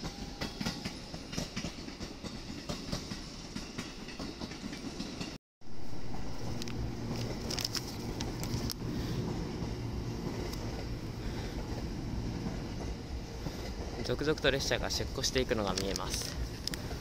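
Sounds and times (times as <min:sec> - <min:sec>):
wheels clicking over rail joints: 0:00.0 - 0:05.4, 0:09.6 - 0:17.0
train rolling past: 0:00.0 - 0:17.0.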